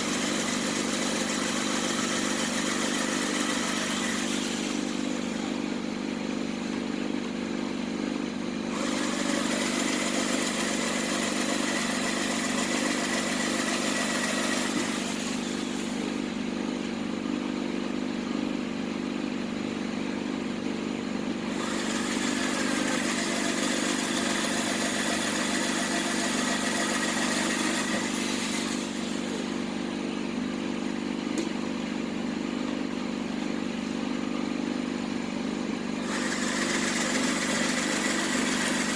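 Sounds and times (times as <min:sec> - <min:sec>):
electric drill drilling into metal: 0:00.0 - 0:05.6, 0:08.7 - 0:16.2, 0:21.5 - 0:29.5, 0:36.0 - 0:38.9.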